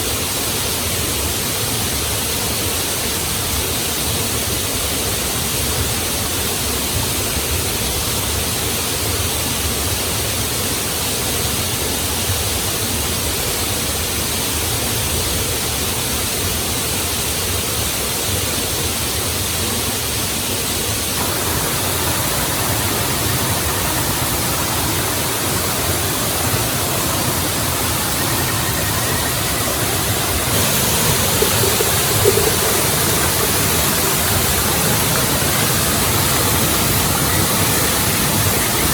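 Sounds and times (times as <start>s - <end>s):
waterfall roaring: 21.2s - 38.9s.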